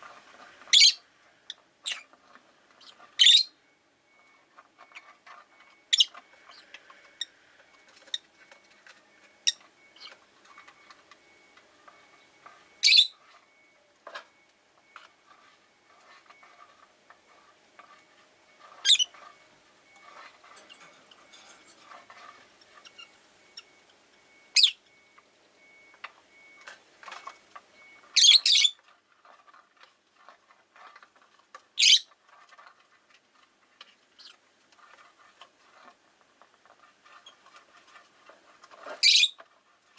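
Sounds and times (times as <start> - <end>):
shrill parrot calls: 12.8 - 13.2, 31.8 - 32.1, 39.0 - 39.4
soft bird chattering: 12.8 - 13.2, 18.8 - 19.1, 31.8 - 32.1.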